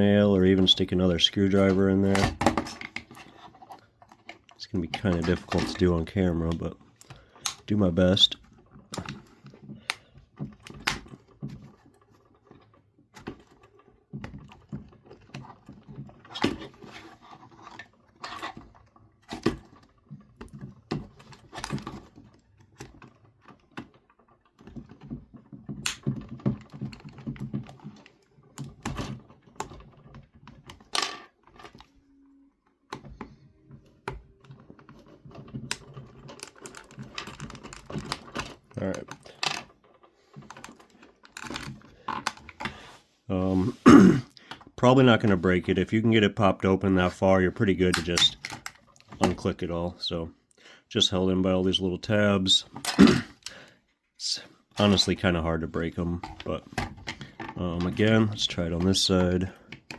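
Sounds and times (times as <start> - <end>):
plastic pry tool scraping: 0.5 - 32.3, 32.9 - 42.9, 54.7 - 59.9.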